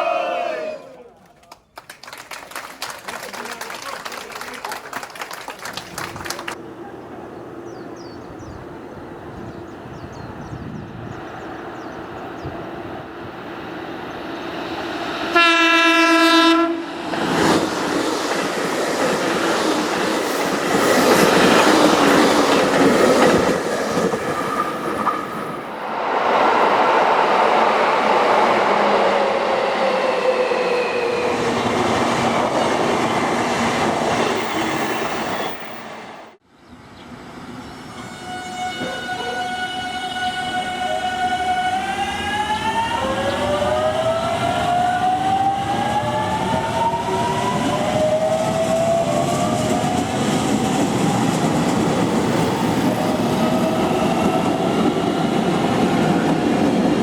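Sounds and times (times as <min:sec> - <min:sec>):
train running noise: 0:05.2 - 0:57.0
train horn blast: 0:15.3 - 0:17.0, 0:37.9 - 0:42.3.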